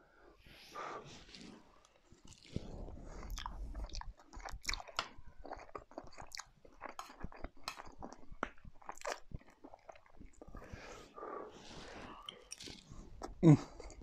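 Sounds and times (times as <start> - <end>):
person chewing food: 1.1 - 14.0
wet mouth noises: 2.2 - 10.8.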